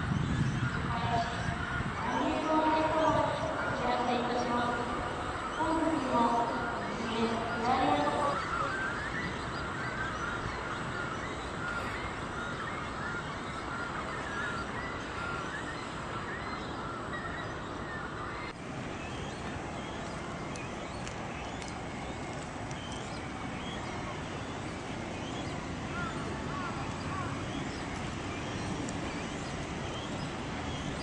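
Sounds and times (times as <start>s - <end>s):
birds chirping: 0.0s - 31.0s
outdoor background hiss: 0.0s - 31.0s
faint high ticks: 20.0s - 23.2s.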